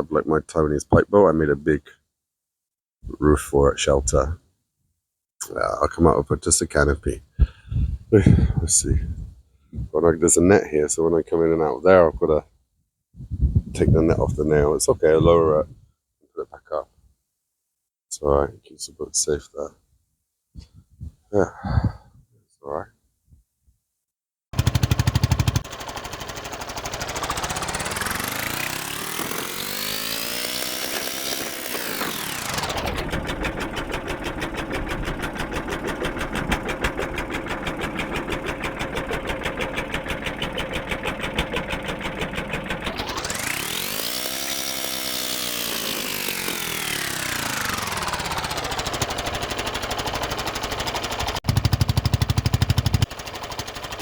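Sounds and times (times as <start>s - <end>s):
small boat engine chugging: 24.6s - 54.0s.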